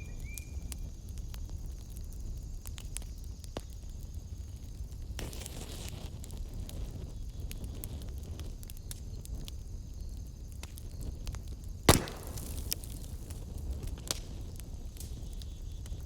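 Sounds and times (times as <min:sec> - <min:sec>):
wood fire crackling: 0:00.2 - 0:16.0
loud pop from fire: 0:05.2 - 0:06.8, 0:11.8 - 0:16.0.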